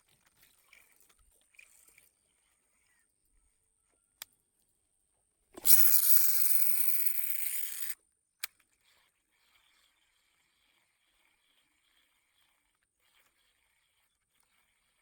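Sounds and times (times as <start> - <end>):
reel click: 5.6 - 8.7
fishing line whirring off reel: 5.6 - 10.7.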